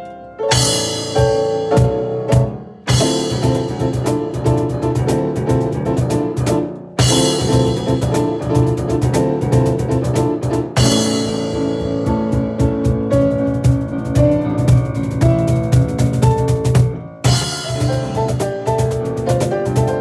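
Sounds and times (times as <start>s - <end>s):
rapid piano chords: 0.0s - 20.0s
hand percussion: 12.1s - 20.0s.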